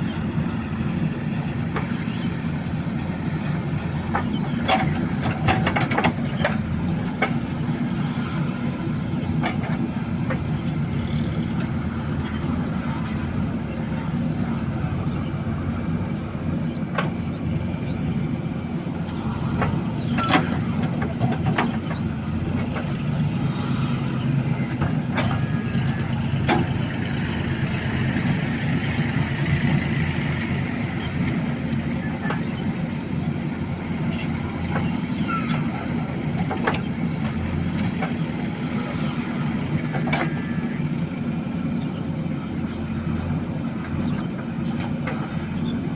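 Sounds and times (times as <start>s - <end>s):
heavy diesel engine running: 0.0s - 45.9s.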